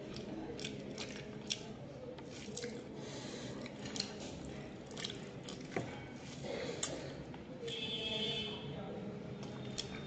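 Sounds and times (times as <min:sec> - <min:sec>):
wet squishy chewing: 0:00.0 - 0:07.3.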